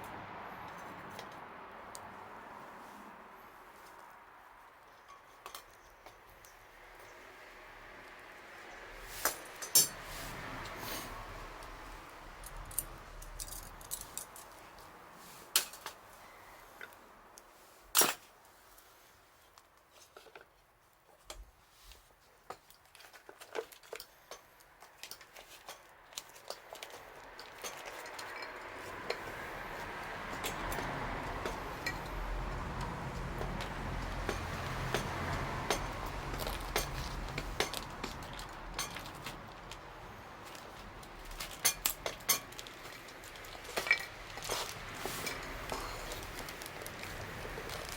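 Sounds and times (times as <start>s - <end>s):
wood fire crackling: 24.4s - 47.9s.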